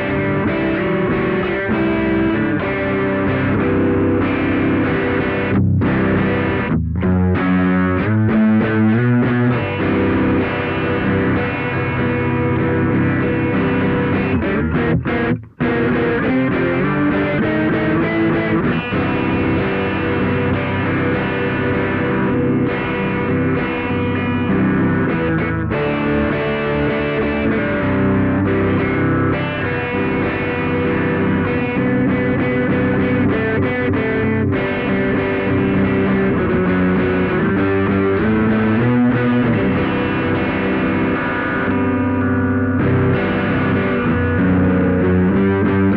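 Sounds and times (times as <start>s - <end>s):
distorted electric guitar: 0.0s - 45.9s.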